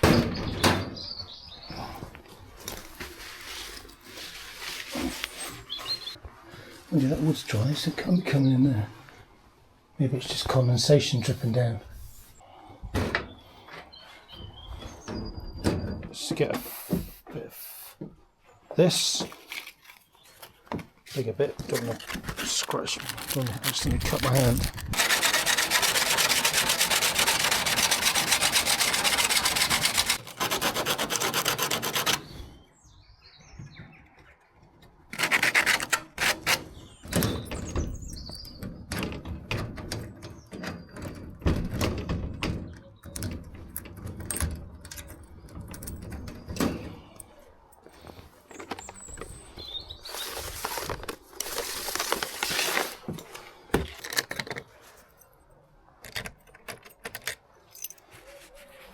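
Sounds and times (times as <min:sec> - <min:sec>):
handling knocks and scrapes: 0:01.8 - 0:07.6, 0:18.9 - 0:32.5, 0:35.1 - 0:55.2
hard fast rubbing on a surface: 0:25.0 - 0:32.2.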